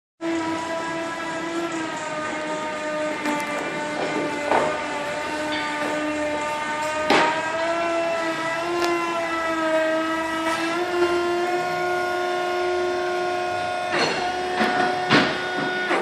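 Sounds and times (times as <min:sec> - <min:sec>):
skid steer loader whining: 0:00.2 - 0:16.0.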